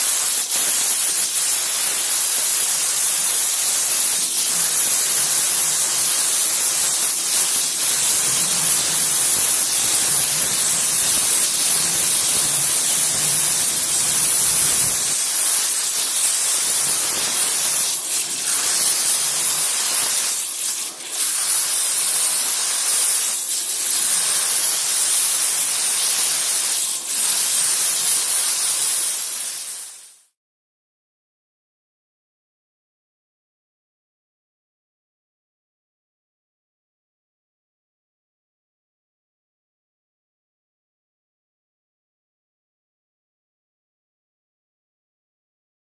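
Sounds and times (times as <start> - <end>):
water jet cutter hissing: 0.0 - 29.8.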